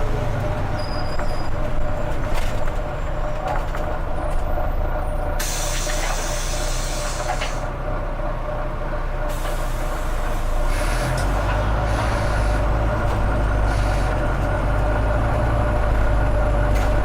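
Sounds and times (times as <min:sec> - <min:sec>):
bus diesel engine running: 0:00.0 - 0:17.0
compressed air hiss: 0:05.4 - 0:07.6.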